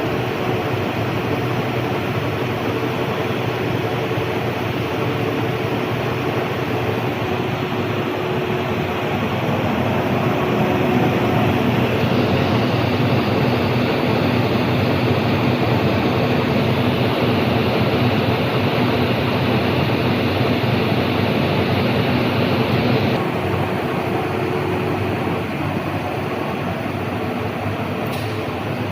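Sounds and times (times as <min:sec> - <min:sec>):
lathe humming: 0:00.1 - 0:27.8.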